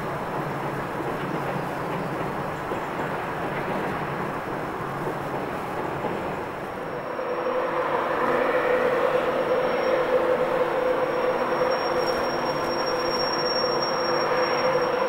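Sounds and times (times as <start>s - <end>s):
train rumble on bridge: 0.0s - 15.0s
electric train high whine: 6.5s - 15.0s.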